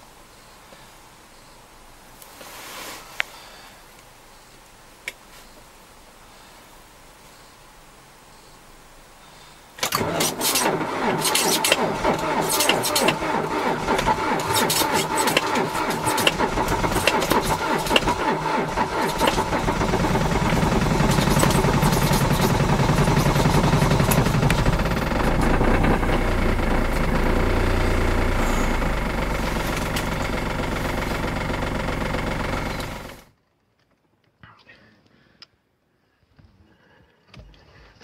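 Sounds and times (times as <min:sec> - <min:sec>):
starter motor cranking: 0:09.8 - 0:33.3
car engine running and idling: 0:09.8 - 0:33.4.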